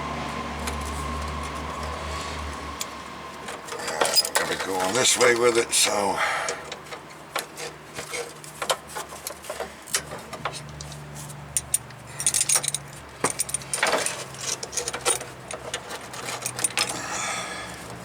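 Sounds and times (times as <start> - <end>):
metallic jingling: 3.6 - 8.4, 11.4 - 18.0
metal tools tapping on steel: 6.4 - 17.1.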